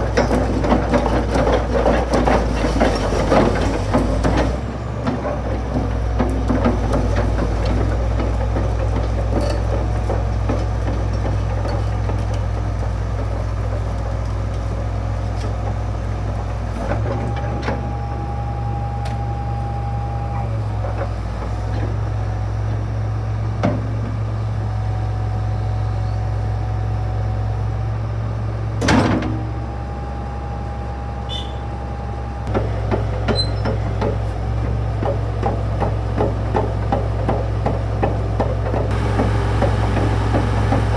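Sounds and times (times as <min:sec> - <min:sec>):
excavator diesel engine running: 0:00.0 - 0:28.8, 0:29.4 - 0:40.9
steady whine: 0:38.9 - 0:40.9.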